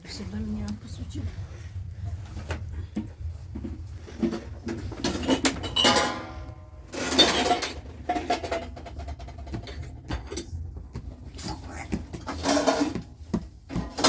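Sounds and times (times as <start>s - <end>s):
pots and dishes clattering: 3.7s - 10.8s, 12.0s - 14.0s.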